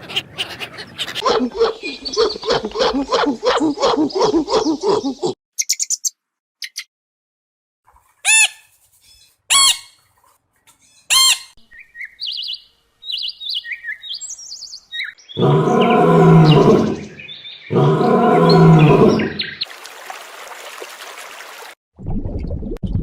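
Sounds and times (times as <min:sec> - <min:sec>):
rapid pitched animal calls: 0:00.0 - 0:05.4
loud arched bird calls: 0:10.9 - 0:19.7.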